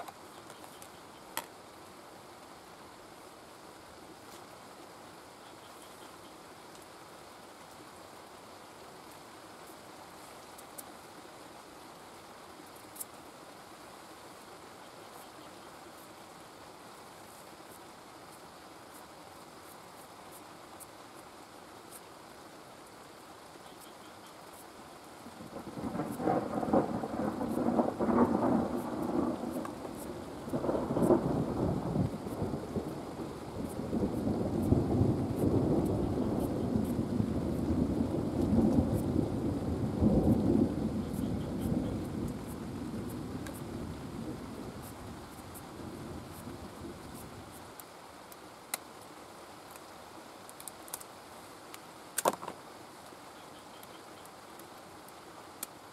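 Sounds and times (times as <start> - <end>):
steady rain: 0.0 - 55.9
sharp drip-like ticks: 5.4 - 7.0, 9.0 - 11.0, 12.6 - 13.2, 27.4 - 31.3, 41.0 - 43.7, 47.1 - 51.1, 51.7 - 55.8
thunder rumbling: 25.3 - 47.5.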